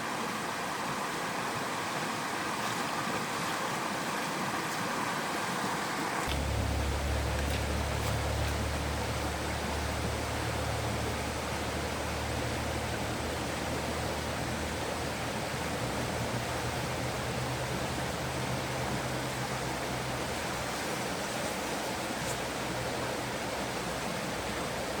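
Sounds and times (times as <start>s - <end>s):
stream rushing: 0.0s - 25.0s
low rumble: 6.3s - 15.3s.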